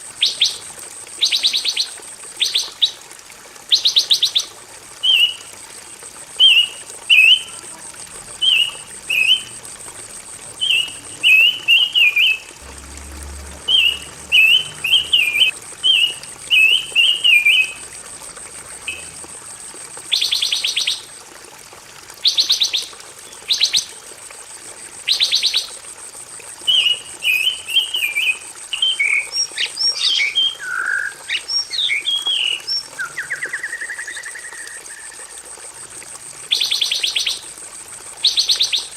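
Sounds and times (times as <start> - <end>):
songbird chirping: 13.6 - 17.8.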